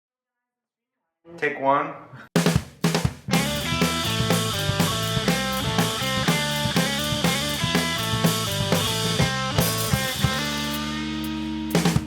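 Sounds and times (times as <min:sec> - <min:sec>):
rock music with drums and guitar: 0:02.4 - 0:12.0.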